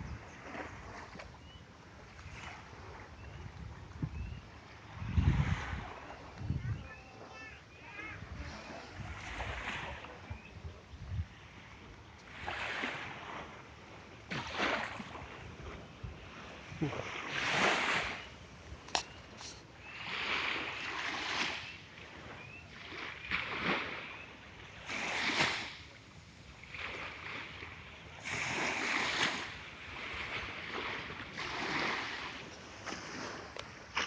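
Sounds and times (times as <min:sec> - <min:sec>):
wind: 0:00.0 - 0:34.0
sea waves washing in: 0:11.2 - 0:34.0
sharp click: 0:18.9 - 0:19.1.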